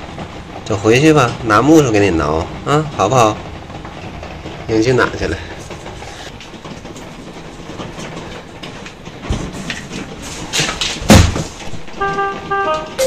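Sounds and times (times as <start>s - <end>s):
knocks: 11.0s - 13.0s
loud thump: 11.1s - 11.5s.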